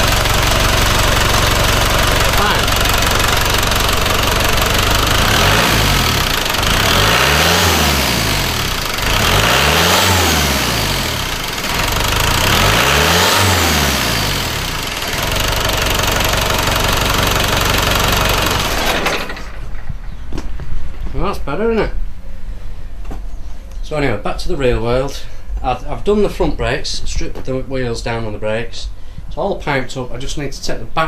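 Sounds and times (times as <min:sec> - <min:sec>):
diesel engine idling and revving: 0:00.0 - 0:19.6.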